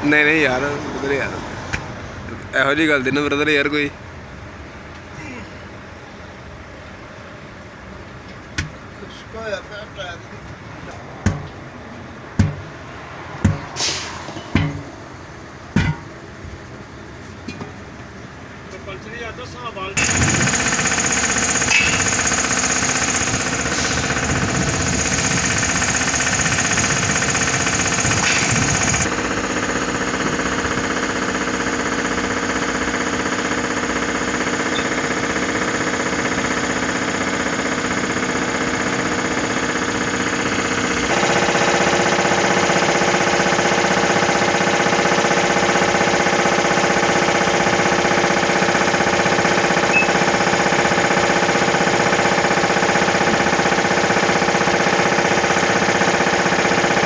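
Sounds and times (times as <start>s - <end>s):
machinery rattling: 20.0s - 57.0s.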